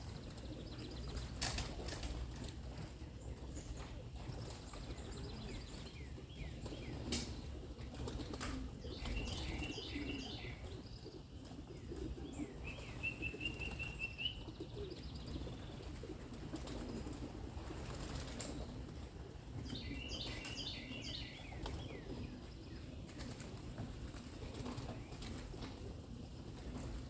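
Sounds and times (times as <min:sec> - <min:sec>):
pigeon wings flapping: 0:00.0 - 0:02.9, 0:06.6 - 0:09.7, 0:15.3 - 0:19.7, 0:21.5 - 0:27.0
small birds chirping: 0:00.0 - 0:16.8, 0:17.8 - 0:25.6.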